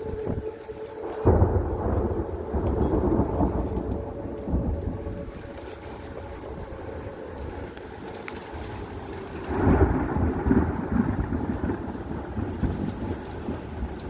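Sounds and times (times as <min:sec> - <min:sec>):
steady rain: 0:00.0 - 0:14.0
thunder rumbling: 0:00.0 - 0:14.0.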